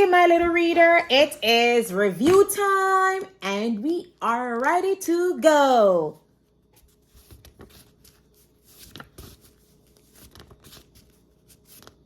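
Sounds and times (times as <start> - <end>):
paper rustling and clicking: 6.9 - 12.0.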